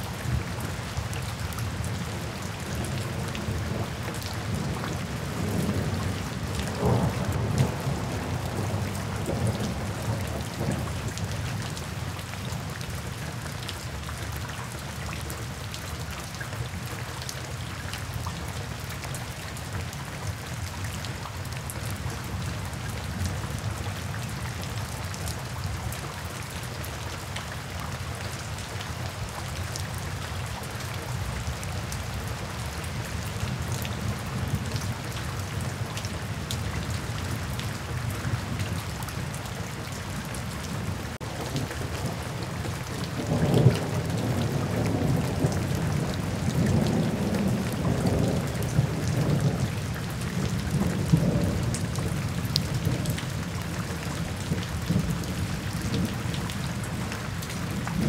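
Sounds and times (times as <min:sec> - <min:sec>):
rain splashing on pavement: 0:00.0 - 0:58.0
low rumble of thunder: 0:02.8 - 0:11.3, 0:40.8 - 0:58.0.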